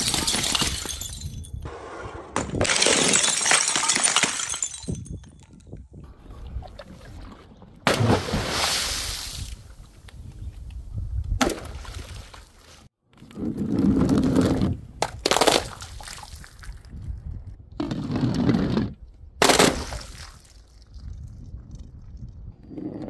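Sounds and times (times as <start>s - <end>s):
glass smashing: 0.0s - 1.6s, 2.5s - 5.4s.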